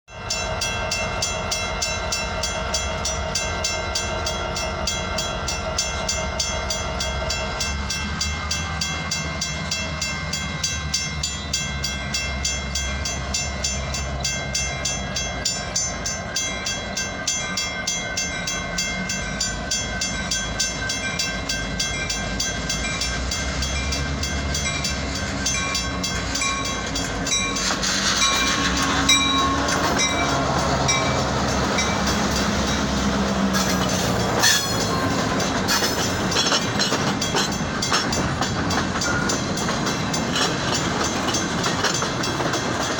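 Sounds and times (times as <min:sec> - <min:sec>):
freight train rolling past: 0:00.1 - 0:42.9
train cars clicking over rail joints: 0:18.8 - 0:42.9.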